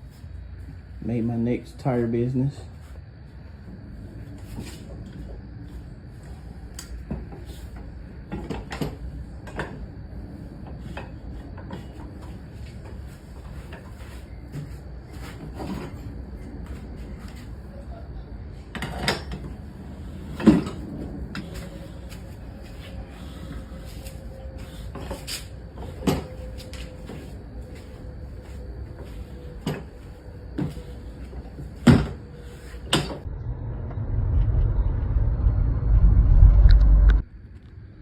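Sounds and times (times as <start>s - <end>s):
loud low rumble: 33.2s - 38.0s.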